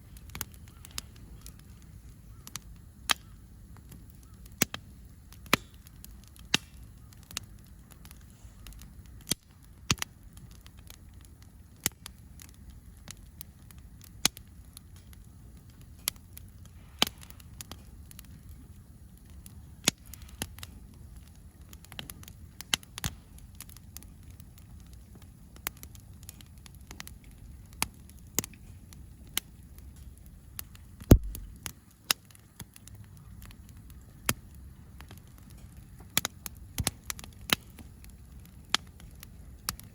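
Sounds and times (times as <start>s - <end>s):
low steady rumble: 0.0s - 4.1s, 26.2s - 32.0s
campfire crackling: 0.0s - 39.9s
sharp pops: 31.1s - 31.7s.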